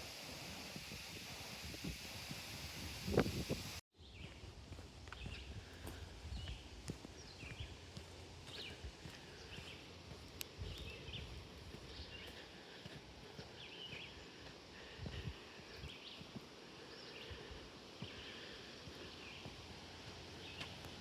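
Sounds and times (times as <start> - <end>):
wind rumble on microphone: 0.2 - 7.8, 10.6 - 12.2, 15.0 - 15.9
small birds chirping: 4.0 - 21.0.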